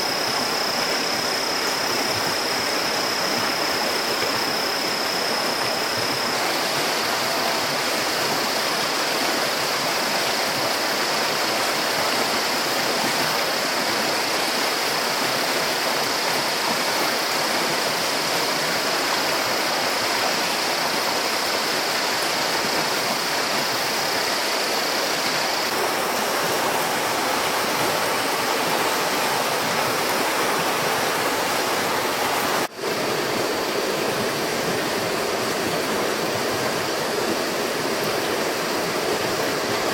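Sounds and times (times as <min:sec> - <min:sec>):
high-pitched steady tone: 0:00.0 - 0:12.7, 0:13.4 - 0:39.8
rushing water: 0:00.0 - 0:39.9.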